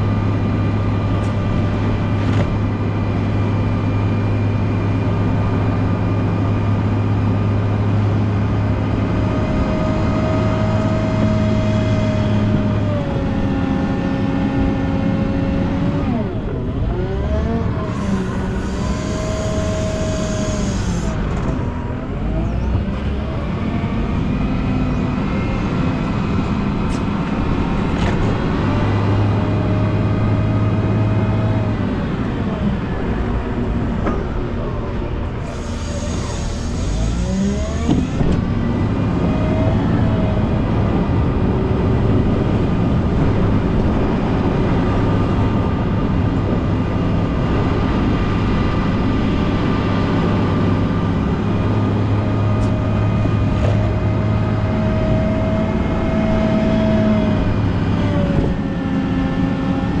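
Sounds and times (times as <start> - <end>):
diesel engine revving: 0.0 - 60.0
short bursts of hiss: 35.5 - 37.2.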